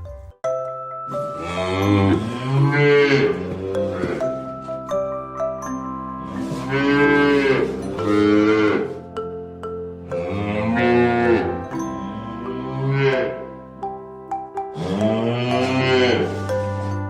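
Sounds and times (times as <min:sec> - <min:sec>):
cattle mooing: 0:01.2 - 0:04.4, 0:06.2 - 0:09.0, 0:10.1 - 0:13.5, 0:14.7 - 0:16.5.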